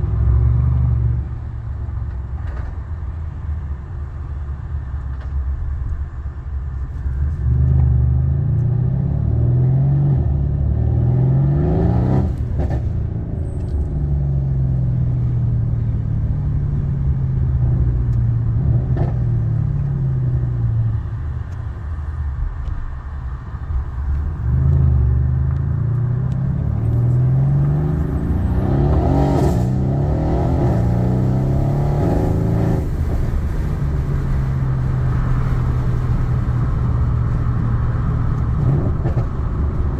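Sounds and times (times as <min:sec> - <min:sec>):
car engine accelerating hard: 0:06.8 - 0:22.0, 0:24.0 - 0:39.9
exhaust crack: 0:11.9 - 0:39.9.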